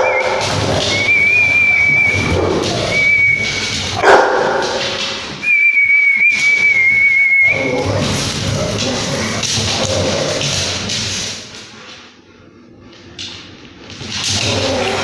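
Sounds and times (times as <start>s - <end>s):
dogs barking: 0.0s - 3.1s, 3.9s - 5.0s
dogs scuffling: 0.0s - 12.2s, 12.8s - 15.0s.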